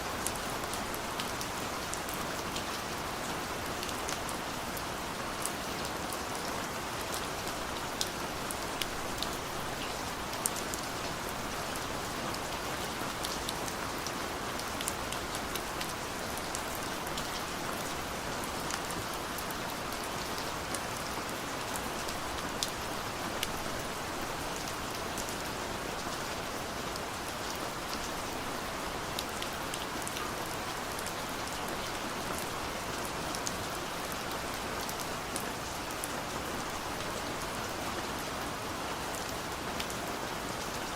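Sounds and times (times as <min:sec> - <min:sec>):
steady rain falling: 0:00.0 - 0:40.9
raindrops ticking on surfaces: 0:00.1 - 0:40.9.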